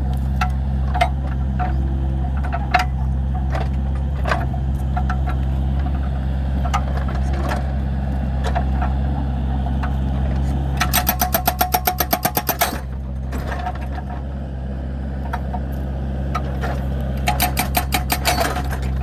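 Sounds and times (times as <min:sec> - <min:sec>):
excavator diesel engine running: 0:00.0 - 0:19.0
sharp clicks and knocks: 0:10.8 - 0:14.0, 0:16.4 - 0:19.0.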